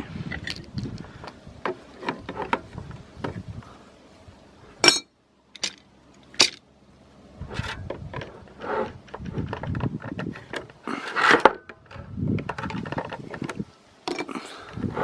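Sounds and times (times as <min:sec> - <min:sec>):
metal objects knocking and clicking: 0:07.6 - 0:10.7, 0:11.4 - 0:14.3.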